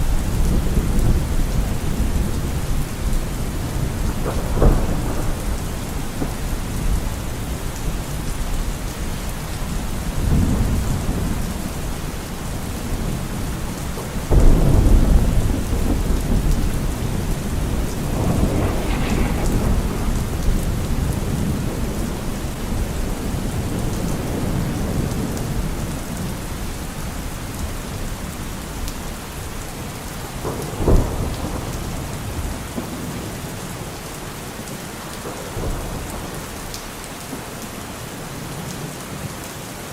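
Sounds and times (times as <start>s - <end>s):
loud thunderclap: 0.0s - 8.6s, 12.6s - 26.2s, 30.3s - 33.4s
sharp crack of thunder: 0.0s - 8.8s, 9.6s - 26.6s, 30.2s - 33.8s
rolling thunder: 0.0s - 33.9s
steady rain: 0.0s - 39.9s.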